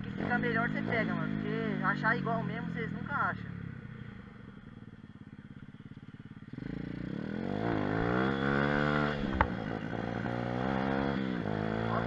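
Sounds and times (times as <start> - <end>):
small motorbike engine revving: 6.5 - 12.0.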